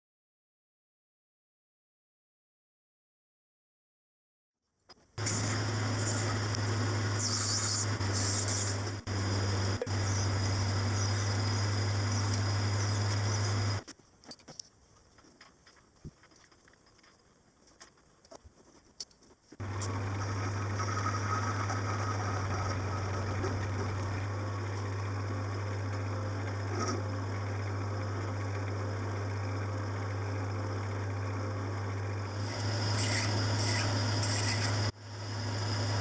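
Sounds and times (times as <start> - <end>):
electric motor humming: 5.2 - 13.8, 19.6 - 25.6, 32.2 - 36.0
harsh high cutting noise: 5.2 - 13.8, 20.2 - 24.3, 32.3 - 34.9
machine cutting noise: 5.2 - 13.8, 19.6 - 24.3, 32.3 - 36.0.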